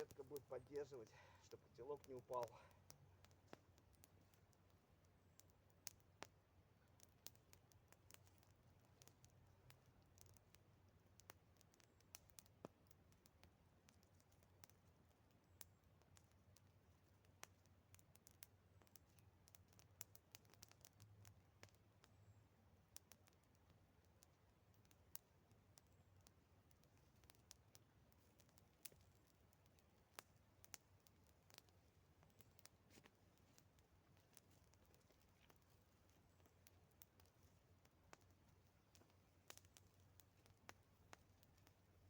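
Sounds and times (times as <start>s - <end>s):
faint campfire crackling: 0.0s - 42.0s.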